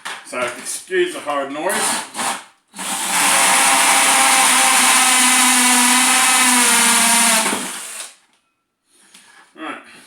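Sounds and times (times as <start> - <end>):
hammer drill drilling plastic: 1.8 - 8.2.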